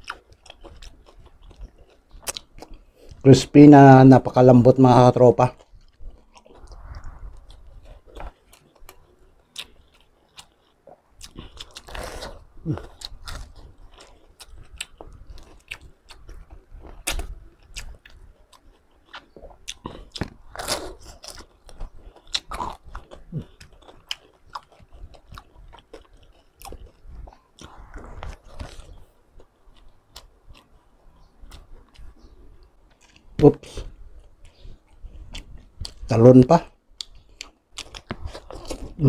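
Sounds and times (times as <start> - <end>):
wet chewing: 0.0 - 3.2, 5.5 - 36.1, 37.0 - 39.0
crunching crispy pork: 0.0 - 30.8.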